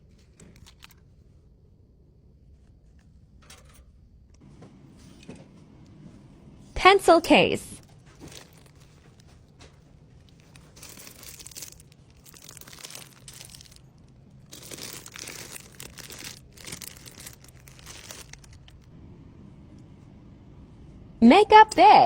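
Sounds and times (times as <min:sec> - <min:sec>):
plastic packaging crinkling: 0:07.8 - 0:18.9.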